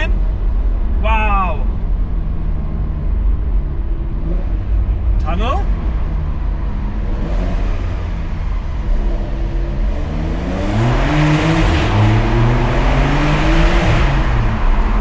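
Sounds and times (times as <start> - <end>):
car engine accelerating: 1.8 - 15.0.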